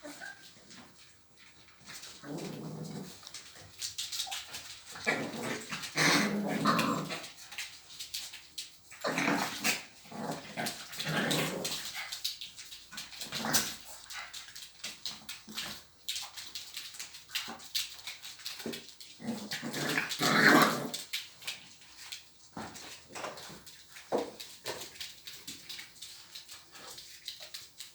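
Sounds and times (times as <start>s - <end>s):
dogs growling and whining: 0.0s - 0.5s, 5.0s - 7.3s, 19.2s - 21.0s.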